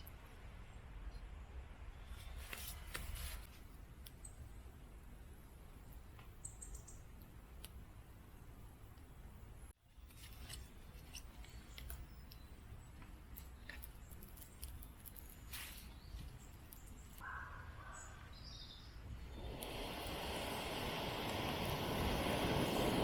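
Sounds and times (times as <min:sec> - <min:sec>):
bird chirps: 0:06.4 - 0:07.0, 0:13.5 - 0:19.6
faint clicks and crackles: 0:10.0 - 0:17.2.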